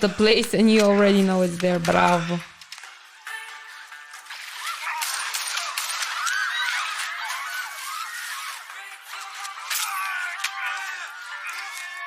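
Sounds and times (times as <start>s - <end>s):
sharp cracks: 4.3s - 7.1s.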